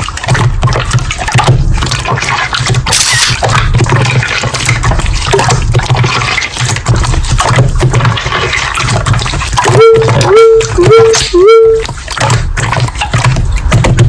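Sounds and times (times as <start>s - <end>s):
sliding electronic notes: 9.7s - 11.8s.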